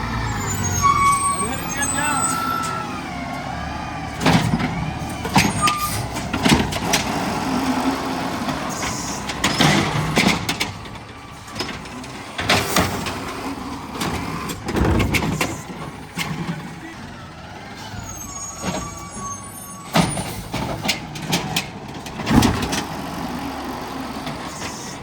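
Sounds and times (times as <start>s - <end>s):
garbage truck engine running: 0.0s - 25.0s
loud clanks and bangs: 4.1s - 7.7s, 8.3s - 16.8s, 19.9s - 23.2s.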